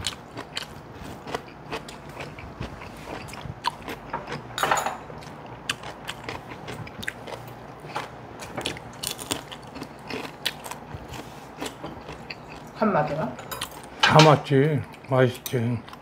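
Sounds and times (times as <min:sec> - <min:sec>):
chewing and crunching food: 0:00.0 - 0:16.0.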